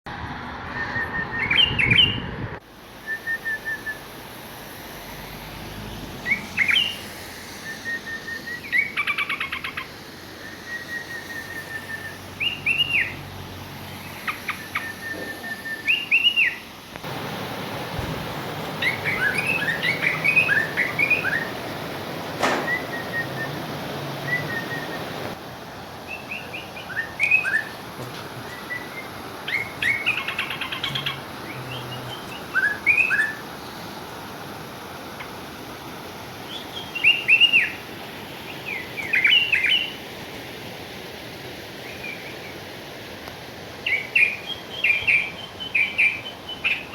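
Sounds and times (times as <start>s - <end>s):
songbirds calling and singing: 0.8s - 2.2s, 5.8s - 25.4s, 26.1s - 34.0s, 36.4s - 40.0s, 43.8s - 46.9s
background hiss: 2.6s - 46.9s
sharp click: 22.4s - 23.2s.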